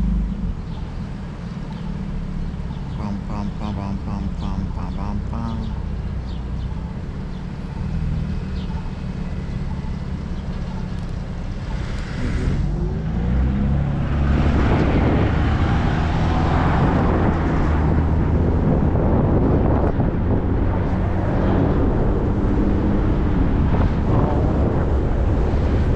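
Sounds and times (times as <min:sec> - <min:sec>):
wind buffeting microphone: 0:11.1 - 0:25.9
low rumble: 0:11.4 - 0:16.3.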